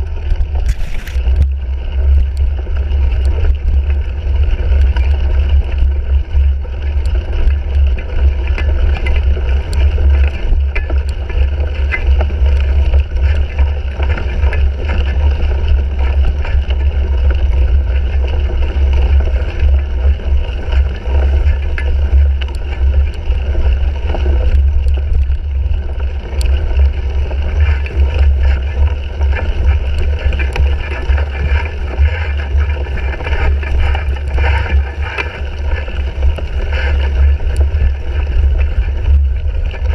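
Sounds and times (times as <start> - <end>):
bike riding rumble: 0.0 - 39.9.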